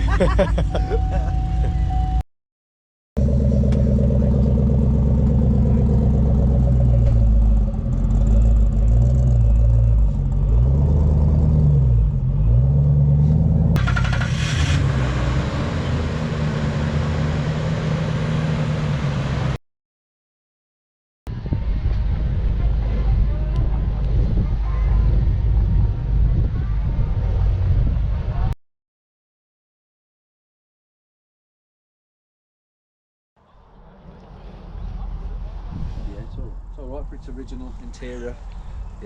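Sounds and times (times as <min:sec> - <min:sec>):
car engine idling and revving: 0:03.2 - 0:19.6, 0:21.3 - 0:28.6.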